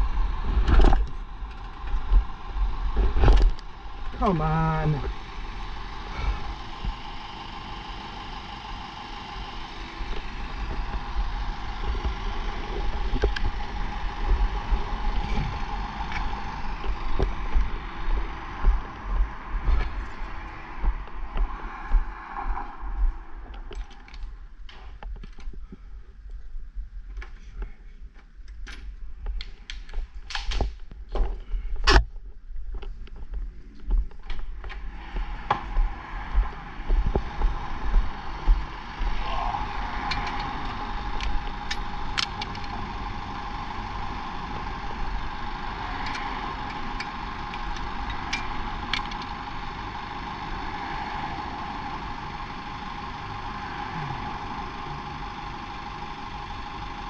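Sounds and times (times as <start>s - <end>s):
wind rumbling on microphone: 0.0s - 4.3s, 10.0s - 27.8s, 30.0s - 50.3s
motorcycle engine running unevenly: 0.0s - 20.6s, 35.2s - 57.0s.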